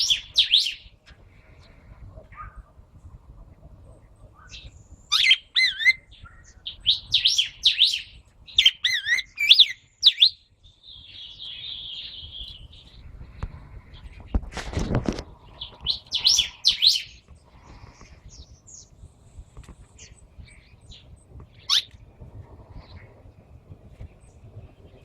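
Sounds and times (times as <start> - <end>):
songbird singing warbled phrases: 0.0 - 1.0, 4.1 - 13.0, 15.4 - 17.3, 20.0 - 22.0
scratchy bird chatter: 4.1 - 25.0
brief rustle: 14.2 - 15.8.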